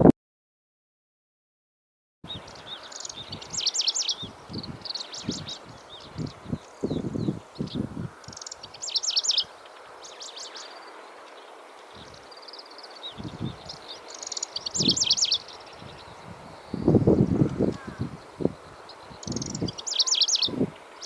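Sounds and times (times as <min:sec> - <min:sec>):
warbler singing rapid high notes: 0:02.3 - 0:10.8, 0:12.0 - 0:20.7.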